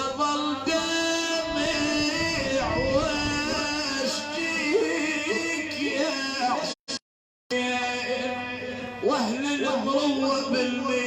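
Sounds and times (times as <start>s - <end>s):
man chanting a lament: 0.0s - 6.9s, 7.5s - 11.0s.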